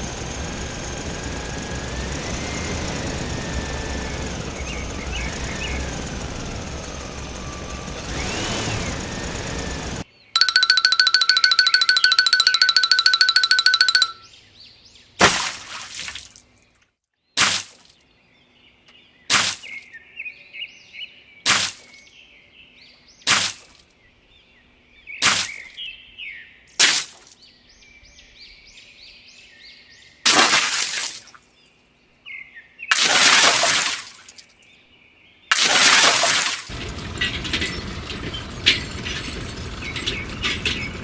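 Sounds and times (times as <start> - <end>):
birds chirping: 0.0 - 10.0, 20.8 - 26.4, 35.2 - 41.0
sharp crashing impacts: 15.2 - 16.3, 17.4 - 17.8, 19.3 - 19.8, 21.5 - 21.9, 23.3 - 23.7, 25.2 - 25.7, 26.8 - 27.2, 30.3 - 31.3, 32.9 - 34.4, 35.5 - 41.0.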